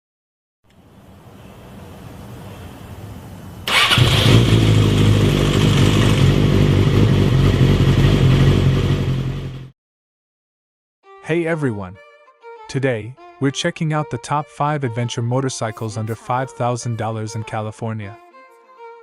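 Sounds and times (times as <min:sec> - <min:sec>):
motorcycle engine starting: 0:03.6 - 0:09.7.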